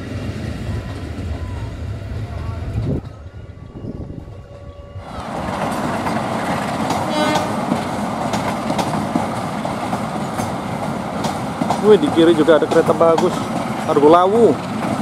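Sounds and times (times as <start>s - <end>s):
train wheels rumbling on rails: 0.0s - 15.0s
clicks over rail joints: 11.2s - 14.9s.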